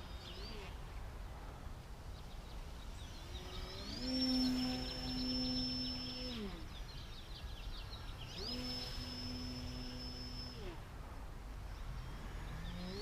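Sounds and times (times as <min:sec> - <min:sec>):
electric motor propeller whine: 0:03.1 - 0:07.0, 0:08.2 - 0:10.9, 0:11.8 - 0:13.0.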